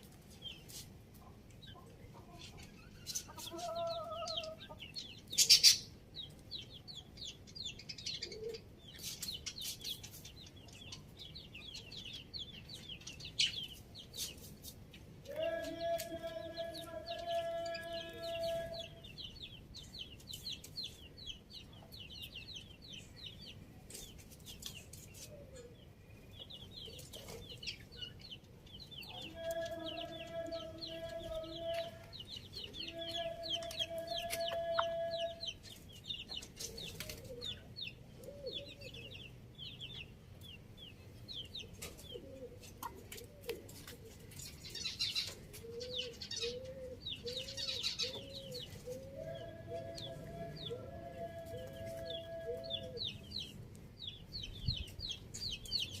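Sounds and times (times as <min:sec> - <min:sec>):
small birds chirping: 0:00.0 - 0:56.0
rooster crowing: 0:49.1 - 0:53.2.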